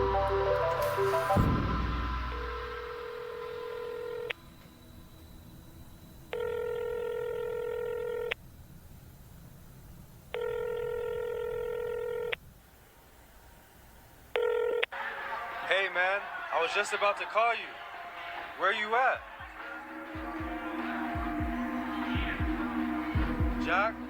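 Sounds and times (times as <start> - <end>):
electronic phone ring tone: 3.0 - 4.6, 6.3 - 8.4, 10.3 - 12.4, 14.3 - 15.0.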